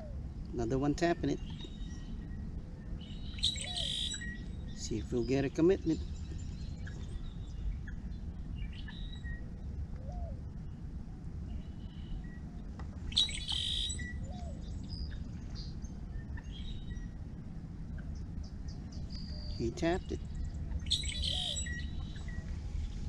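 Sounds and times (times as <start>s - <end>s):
low background noise: 0.0s - 23.0s
birds chirping and calling: 3.0s - 8.0s, 13.1s - 15.6s, 19.0s - 22.4s
harsh bird call: 3.4s - 4.2s, 20.9s - 22.2s.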